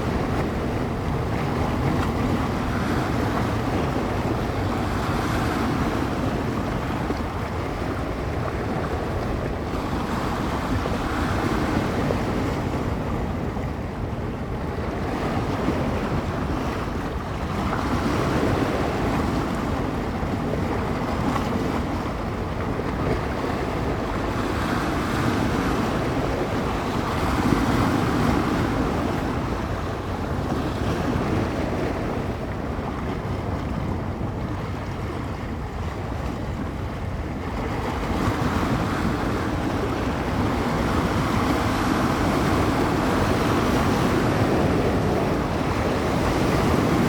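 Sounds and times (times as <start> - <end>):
small waves breaking on shore: 0.0 - 47.0
wind buffeting microphone: 0.0 - 47.0.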